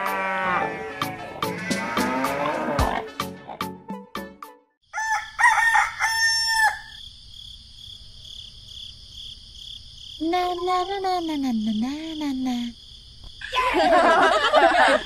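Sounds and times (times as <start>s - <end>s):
cow mooing: 0.0s - 3.1s
rooster crowing: 4.9s - 7.0s
crickets chirring: 4.9s - 15.0s.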